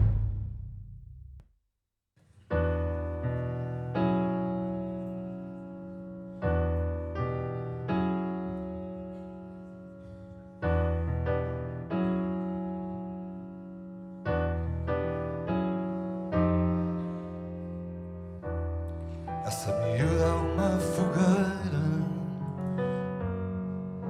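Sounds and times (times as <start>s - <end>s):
drum hit: 0.0s - 1.4s
slow sustained piano chords: 2.6s - 24.0s.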